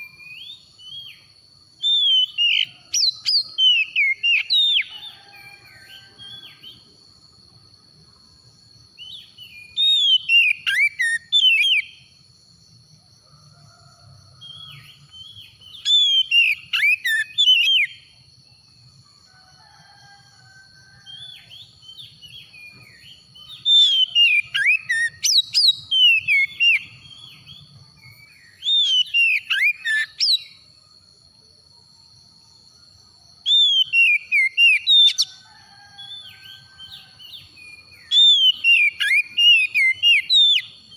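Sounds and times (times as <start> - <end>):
bird singing whistled notes: 0.0 - 6.9, 9.0 - 12.1, 13.8 - 18.1, 21.0 - 30.6, 33.4 - 40.9.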